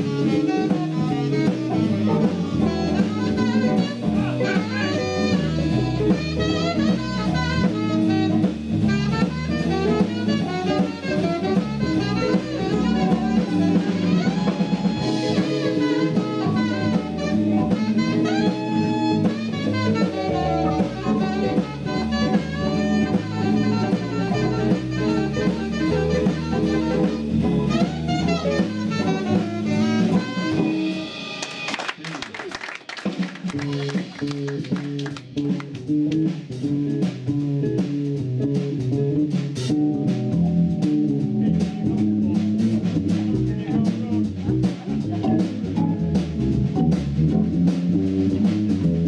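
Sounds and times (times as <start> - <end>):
keyboard: 0.0 - 31.4, 36.7 - 49.0
trombone: 0.0 - 31.4
electric guitar: 0.0 - 31.7, 33.1 - 49.0
saxophone: 0.0 - 31.7
bass guitar: 0.0 - 32.1, 33.0 - 49.0
drum kit swing beat: 0.0 - 49.0.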